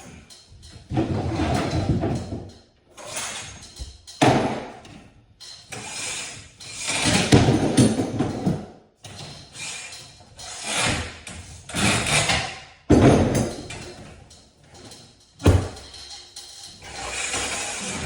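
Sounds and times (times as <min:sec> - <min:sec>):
scraping noises: 0:16.7 - 0:18.0.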